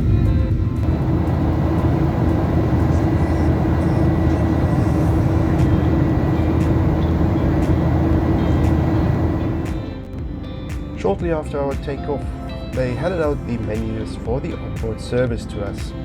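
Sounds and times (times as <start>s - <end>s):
jet engines at takeoff: 0.0s - 10.8s.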